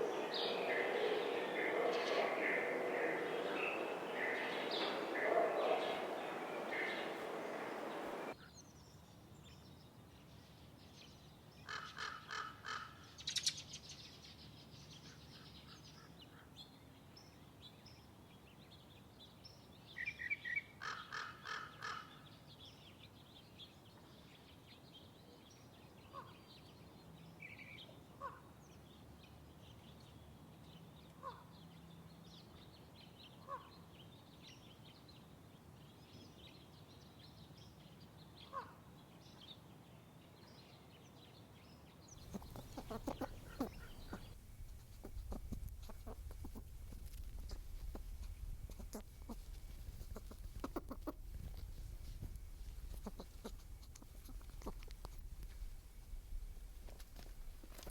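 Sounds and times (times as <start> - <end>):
faint steady hiss: 0.0 - 8.4, 42.2 - 57.9
harsh bird calls: 0.0 - 8.4, 42.2 - 48.0.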